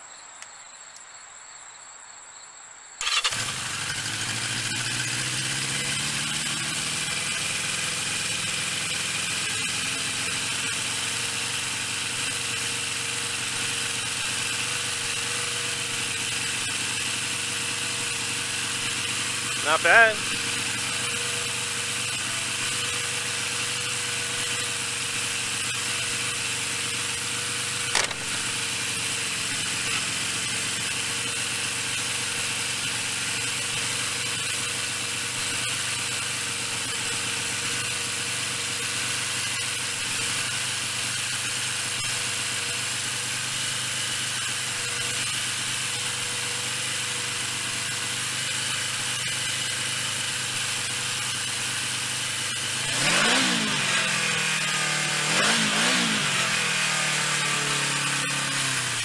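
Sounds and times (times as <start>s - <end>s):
motorcycle engine idling: 3.0s - 59.0s
sharp click: 27.9s - 28.4s.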